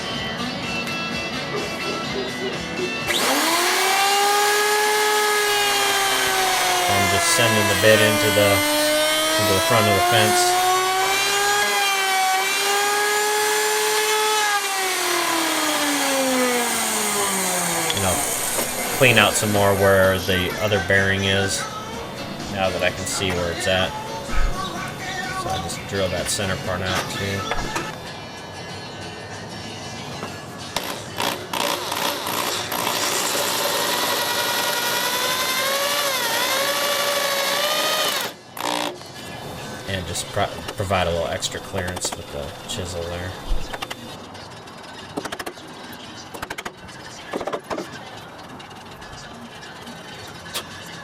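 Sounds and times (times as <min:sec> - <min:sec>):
wood router whining: 0:02.0 - 0:28.0, 0:30.8 - 0:44.2
electric drill boring wood: 0:03.0 - 0:21.7, 0:30.8 - 0:39.1.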